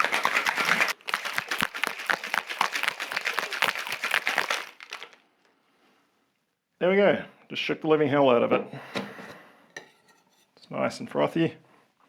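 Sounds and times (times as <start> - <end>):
ice rattling in cocktail shaker: 0.0 - 5.2.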